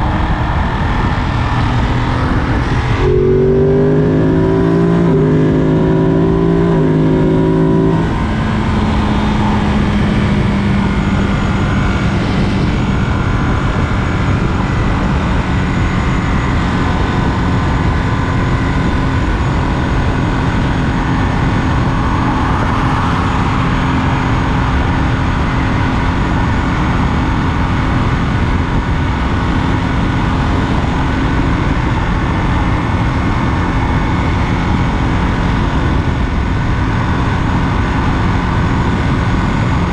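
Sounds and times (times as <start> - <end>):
heavy wind rush: 0.0 - 39.9.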